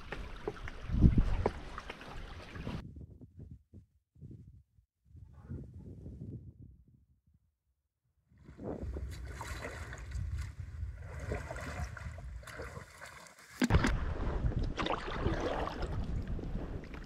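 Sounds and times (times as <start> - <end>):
water lapping and splashing: 0.0 - 2.8, 8.4 - 17.0
wind buffeting microphone: 0.7 - 1.7, 2.6 - 7.2, 8.4 - 12.9, 13.7 - 17.0.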